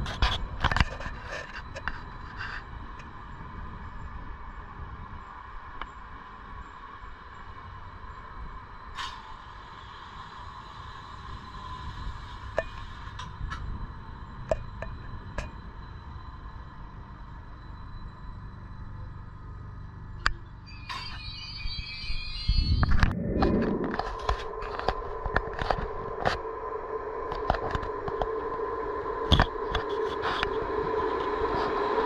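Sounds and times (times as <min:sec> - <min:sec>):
wheel clicks and squeaks: 0:05.2 - 0:23.1.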